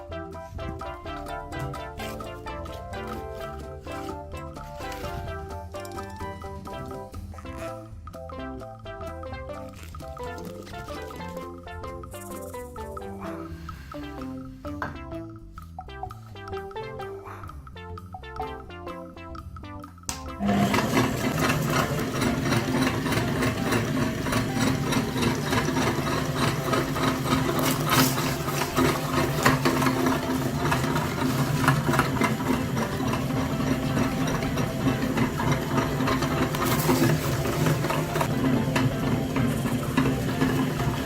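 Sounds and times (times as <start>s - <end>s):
tractor motor rattling: 20.4s - 41.0s.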